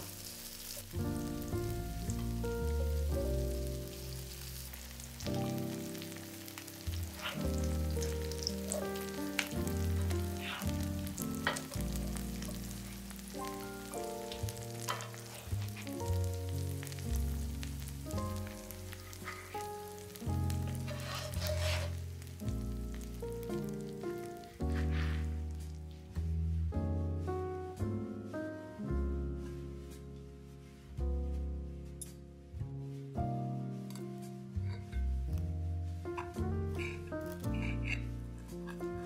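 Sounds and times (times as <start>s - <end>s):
background music with chords: 0.0s - 21.0s, 21.9s - 39.0s
fritter sizzling in oil: 0.0s - 25.9s, 36.1s - 39.0s.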